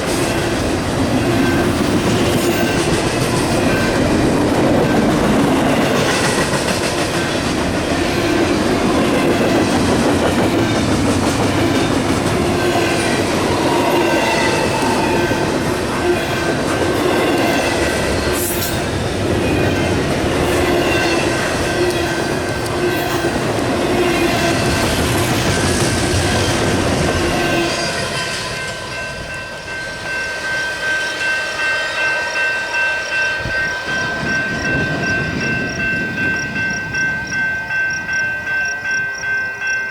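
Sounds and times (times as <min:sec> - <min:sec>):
crossing bell ringing: 0:00.0 - 0:39.9
train wheels on rails: 0:00.0 - 0:39.9.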